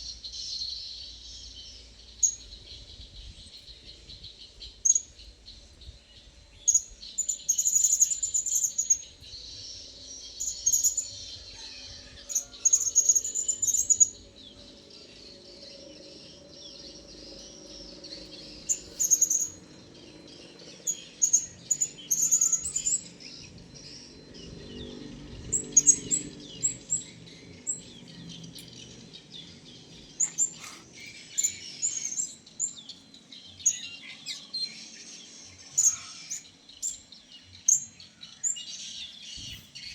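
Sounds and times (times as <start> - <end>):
faint low drone: 12.9 - 33.5.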